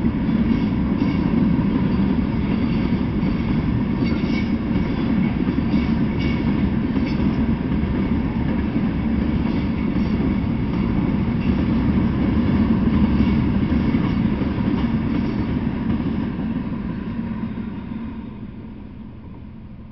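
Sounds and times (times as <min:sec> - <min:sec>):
freight train wheels rumbling: 0:00.0 - 0:19.9.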